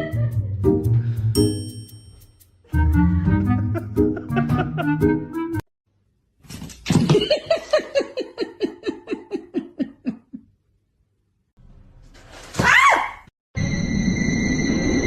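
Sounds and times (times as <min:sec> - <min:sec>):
person laughing: 0:00.0 - 0:00.6, 0:03.6 - 0:05.1, 0:07.0 - 0:10.5.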